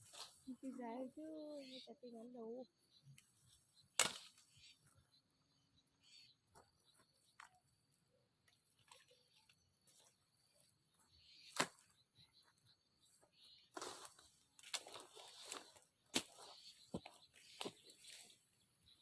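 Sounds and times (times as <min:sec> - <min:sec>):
blade chopping wood: 0:04.0 - 0:04.3.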